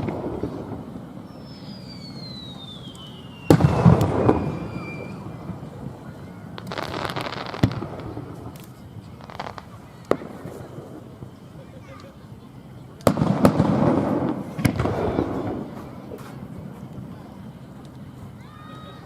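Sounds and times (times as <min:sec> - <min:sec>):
firework falling whistle: 0:00.0 - 0:11.0
firework cracks: 0:00.0 - 0:12.2, 0:12.9 - 0:18.2
firework crackling hiss: 0:00.0 - 0:19.0
firework boom: 0:03.4 - 0:06.0, 0:13.0 - 0:16.2.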